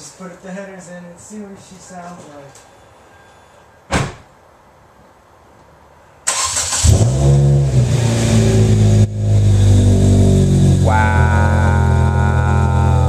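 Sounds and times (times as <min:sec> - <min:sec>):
car engine cranking and revving: 0:06.3 - 0:13.0.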